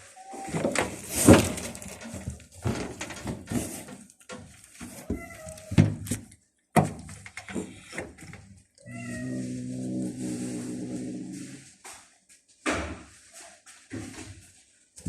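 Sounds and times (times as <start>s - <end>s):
knocks and rustles: 0.4s - 8.6s
cats meowing: 4.9s - 6.0s, 8.8s - 11.7s.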